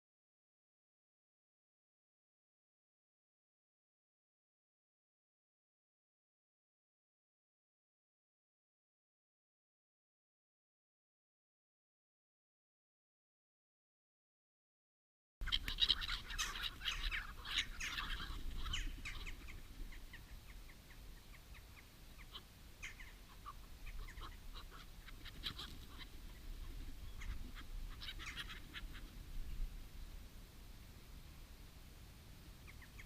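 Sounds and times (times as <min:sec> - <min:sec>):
birds calling: 0:15.4 - 0:29.8, 0:32.6 - 0:33.0.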